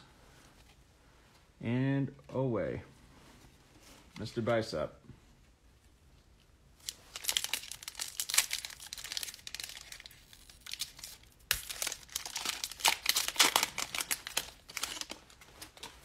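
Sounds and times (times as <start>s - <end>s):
plastic wrapper tearing and crinkling: 6.8s - 16.0s.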